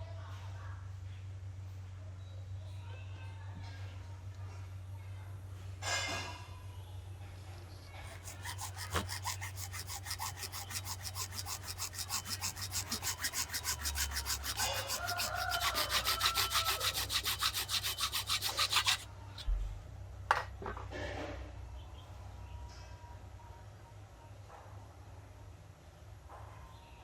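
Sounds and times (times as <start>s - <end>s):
hand tool scraping: 7.6s - 19.5s.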